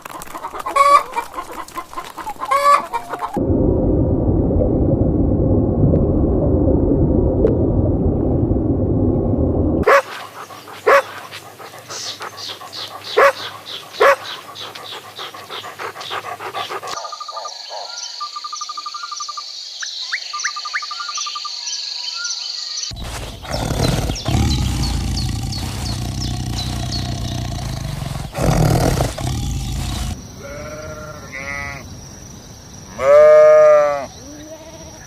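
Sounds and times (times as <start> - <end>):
dog barking: 9.8 - 18.2
small birds chirping: 10.0 - 30.2.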